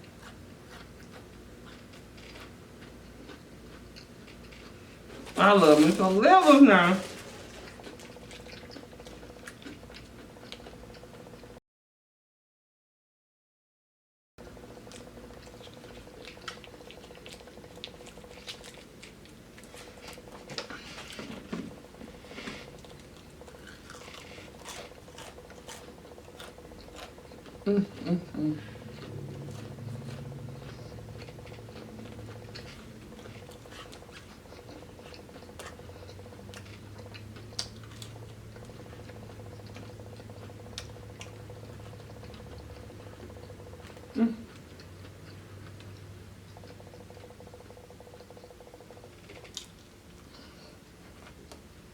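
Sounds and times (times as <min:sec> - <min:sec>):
wet chewing with lip smacks: 0:07.3 - 0:11.4, 0:14.9 - 0:27.6, 0:28.8 - 0:51.6
faint steady hum: 0:14.4 - 0:51.9.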